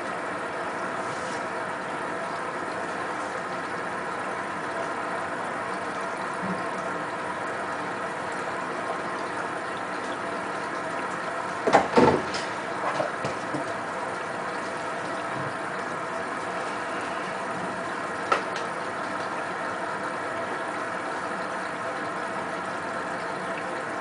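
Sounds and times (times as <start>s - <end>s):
washing machine running: 0.0s - 24.0s
washing machine knocks: 11.6s - 12.3s, 12.9s - 13.7s, 15.3s - 15.6s.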